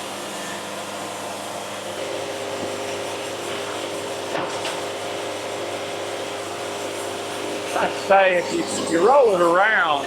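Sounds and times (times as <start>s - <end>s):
sawmill engine and hydraulics: 0.0s - 10.0s.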